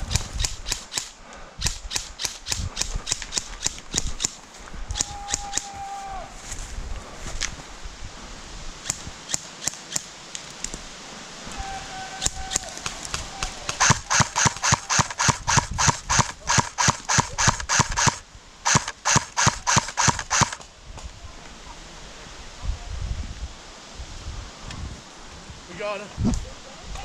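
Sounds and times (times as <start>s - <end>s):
airsoft gun shots: 0.0s - 4.4s, 12.3s - 20.6s.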